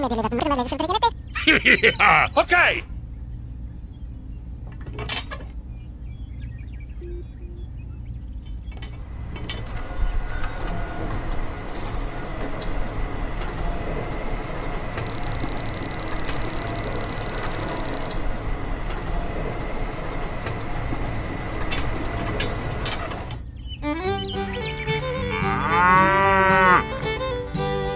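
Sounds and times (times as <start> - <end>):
fast high-pitched ticking: 15.1 - 18.1.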